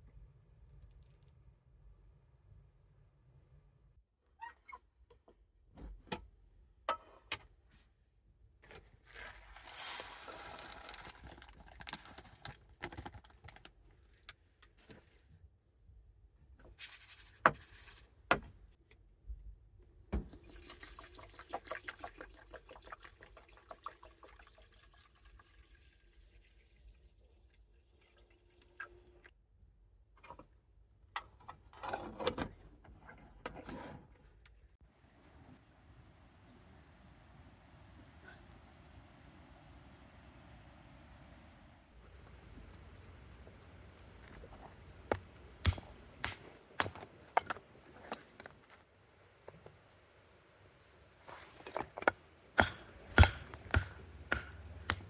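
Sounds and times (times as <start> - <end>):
water running: 20.2 - 29.3.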